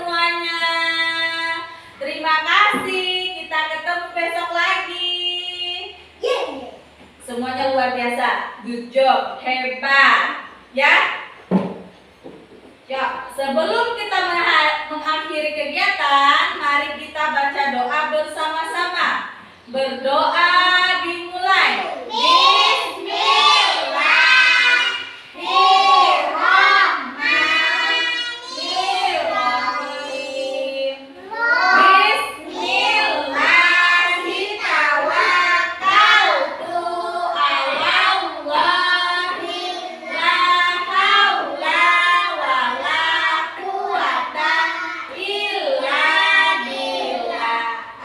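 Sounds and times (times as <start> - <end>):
children chanting a prayer: 21.6 - 48.0.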